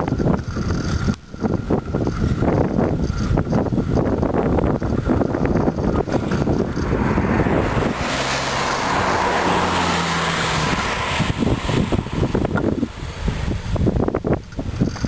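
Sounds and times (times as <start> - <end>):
wind buffeting microphone: 0.0 - 15.0
car passing by: 5.9 - 14.0.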